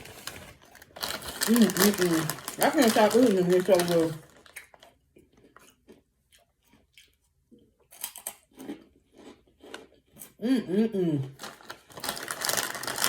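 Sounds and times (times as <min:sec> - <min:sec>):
person chewing crunchy snack: 0:00.9 - 0:10.4.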